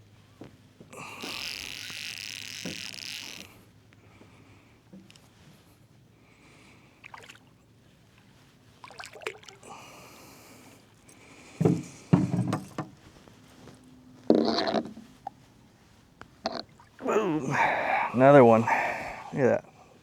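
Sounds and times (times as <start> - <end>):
water sloshing against boat hull: 6.9 - 19.3
splash: 7.0 - 7.5, 8.8 - 9.7.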